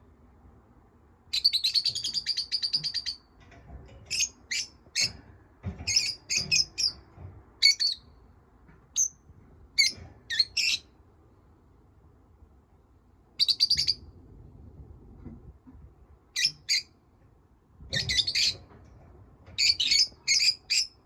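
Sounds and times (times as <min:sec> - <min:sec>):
parrots chirping: 0:13.4 - 0:14.0, 0:16.4 - 0:16.9, 0:19.6 - 0:21.0.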